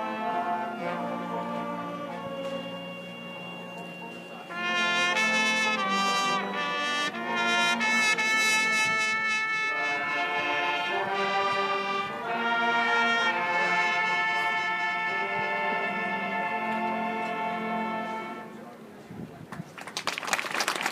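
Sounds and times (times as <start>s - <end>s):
brass band playing sustained chords: 0.0s - 19.0s.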